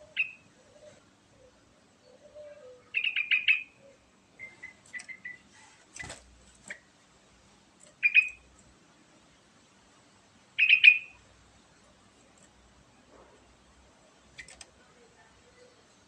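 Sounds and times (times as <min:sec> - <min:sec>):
bird chattering song: 0:00.0 - 0:01.0, 0:02.1 - 0:06.1, 0:08.0 - 0:08.5, 0:10.6 - 0:11.2
sharp click: 0:14.4 - 0:14.7.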